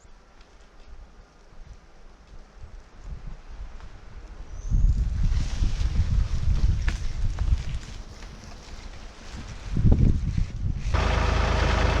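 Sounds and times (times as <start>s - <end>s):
tractor diesel engine running: 11.0s - 12.0s.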